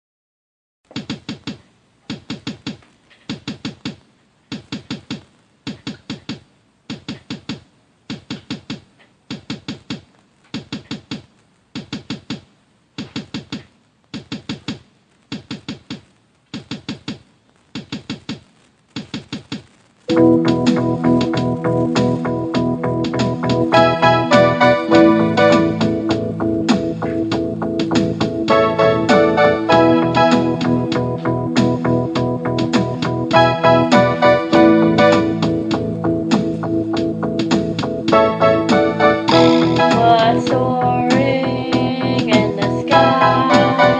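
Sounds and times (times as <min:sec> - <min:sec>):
rhythmic knocking: 0:19.0 - 0:43.9
organ-like keyboard chord: 0:20.1 - 0:40.9.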